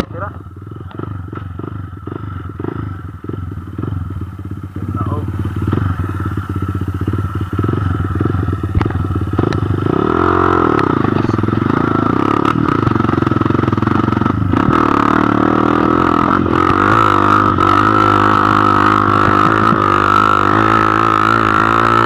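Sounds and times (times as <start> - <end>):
dirt bike engine revving: 0.0 - 22.0
bike knocks and rattles: 4.8 - 10.1.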